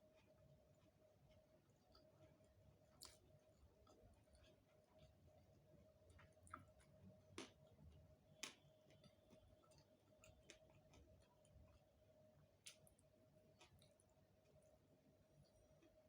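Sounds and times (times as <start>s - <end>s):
faint steady hum: 0.0s - 16.0s
chewing mouth clicks and smacks: 0.2s - 5.2s, 6.1s - 7.8s, 8.4s - 11.9s, 12.6s - 14.7s.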